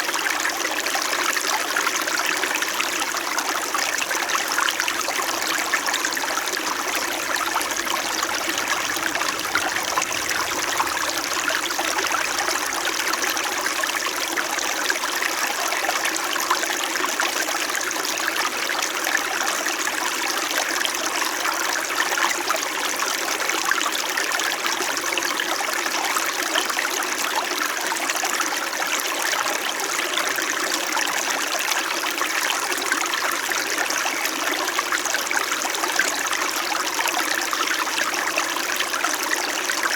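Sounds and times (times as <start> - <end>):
stream flowing over rocks: 0.2 - 19.0.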